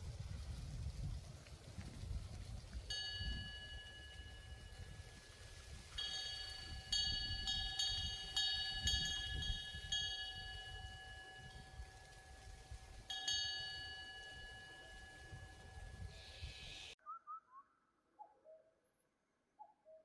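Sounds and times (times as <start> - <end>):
low wind rumble: 0.0 - 14.0
metal wind bell ringing: 2.9 - 16.6.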